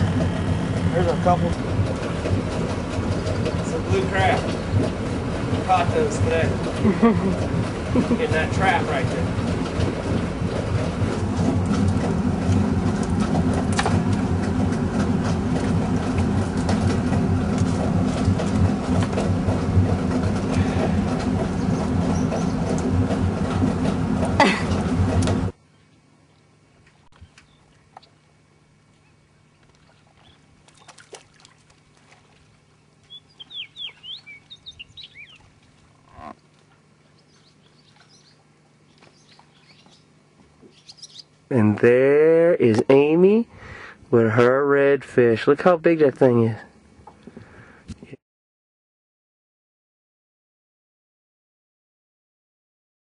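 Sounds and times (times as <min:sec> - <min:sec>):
birds chirping: 0:00.0 - 0:31.1, 0:32.6 - 0:41.8
boat motor rumbling: 0:00.0 - 0:48.2
faint steady hum: 0:24.3 - 0:48.0.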